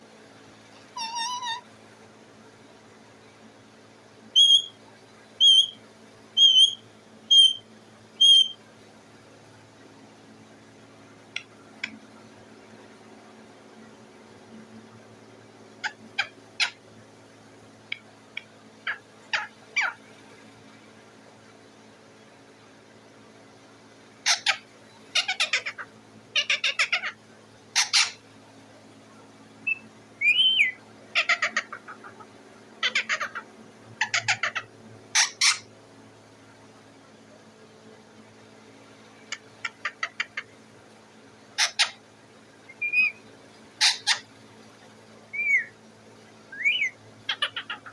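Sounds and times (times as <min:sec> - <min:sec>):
parrot squawking: 0:00.9 - 0:01.7, 0:04.4 - 0:04.7, 0:05.4 - 0:05.8, 0:06.4 - 0:07.6, 0:08.2 - 0:08.6, 0:15.8 - 0:16.8, 0:18.8 - 0:20.0, 0:24.2 - 0:27.2, 0:27.8 - 0:28.2, 0:29.7 - 0:35.7, 0:39.3 - 0:40.5, 0:41.6 - 0:42.0, 0:42.7 - 0:43.2, 0:43.8 - 0:44.2, 0:45.3 - 0:45.7, 0:46.5 - 0:47.9
parrot whistling: 0:01.0 - 0:01.6, 0:04.4 - 0:04.7, 0:05.4 - 0:05.8, 0:06.4 - 0:07.6, 0:08.2 - 0:08.6, 0:29.6 - 0:32.2, 0:32.8 - 0:33.4, 0:42.7 - 0:43.2, 0:43.8 - 0:44.2, 0:45.3 - 0:45.7, 0:46.5 - 0:47.9.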